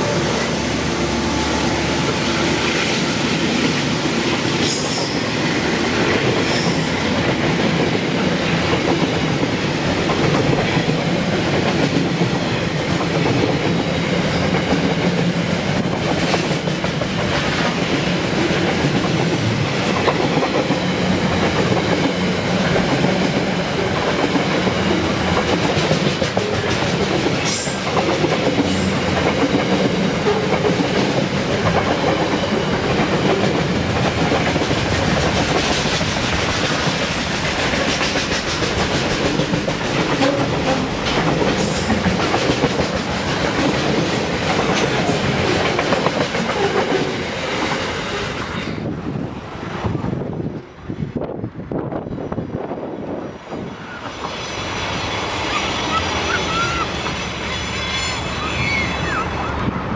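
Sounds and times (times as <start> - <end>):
train wheels rumbling on rail: 0.0 - 59.9
clickety-clack over rail joints: 3.5 - 48.9.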